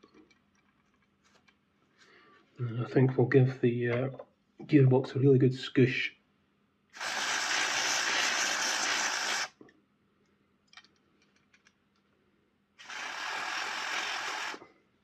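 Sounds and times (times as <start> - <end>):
aerosol spray can hissing: 7.0 - 9.6, 12.8 - 14.6.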